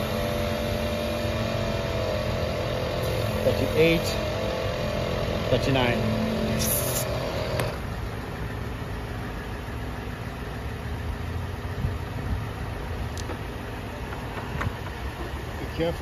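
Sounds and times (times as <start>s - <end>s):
air compressor running: 0.0s - 8.2s.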